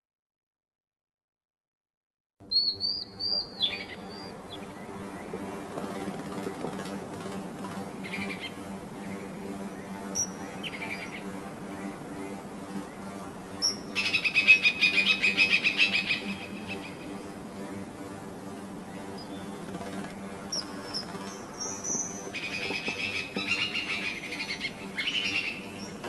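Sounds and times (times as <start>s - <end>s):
small birds chirping: 2.5s - 5.4s.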